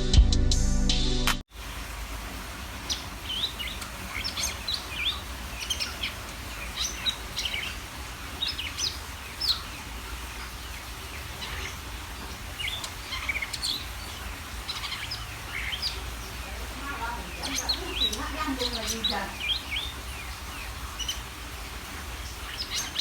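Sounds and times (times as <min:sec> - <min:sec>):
bird singing chirps and whistles: 0:22.2 - 0:23.0.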